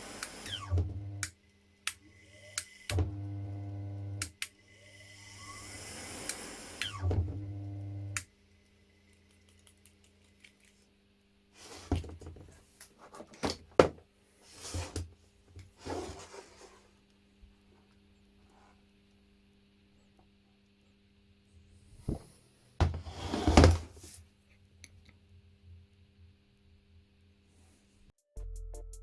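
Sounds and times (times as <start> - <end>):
washing machine motor humming: 0.0 - 9.0.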